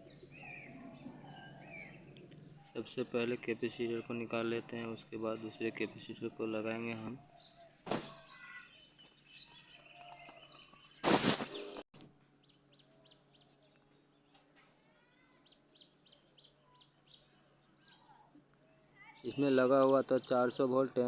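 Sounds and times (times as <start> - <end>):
small birds chirping: 0.0 - 21.0
loud burst of noise: 11.0 - 11.6.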